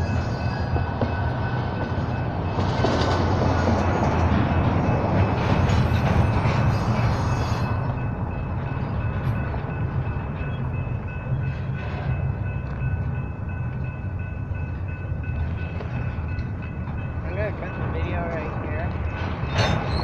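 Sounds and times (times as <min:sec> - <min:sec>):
train wheels rumbling on rails: 0:00.0 - 0:20.0
high-pitched wheel squeal: 0:05.7 - 0:07.8, 0:19.4 - 0:20.0.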